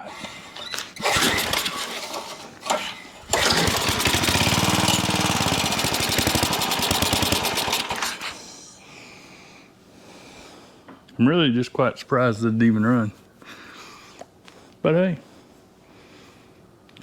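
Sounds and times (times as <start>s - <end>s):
recoil starter pulls: 0.0s - 8.4s
small engine running: 1.0s - 8.4s.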